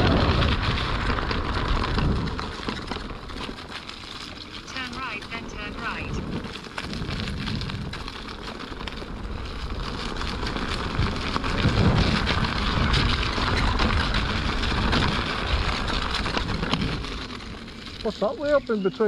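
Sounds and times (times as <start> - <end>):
tyre noise on path: 0.0 - 19.0
wind buffeting microphone: 0.0 - 19.0.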